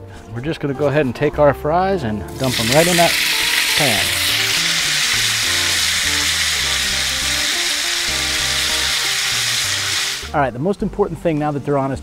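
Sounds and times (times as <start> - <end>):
fries sizzling in hot oil: 2.3 - 10.3.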